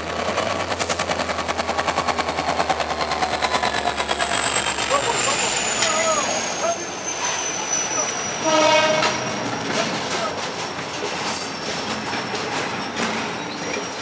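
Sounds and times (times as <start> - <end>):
freight train wheels clicking and rumbling: 0.0 - 14.0
train horn blast: 8.4 - 9.7.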